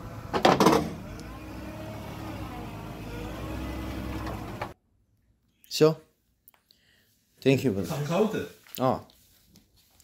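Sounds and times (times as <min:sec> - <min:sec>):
vehicle engine running at low revs: 0:00.0 - 0:04.8.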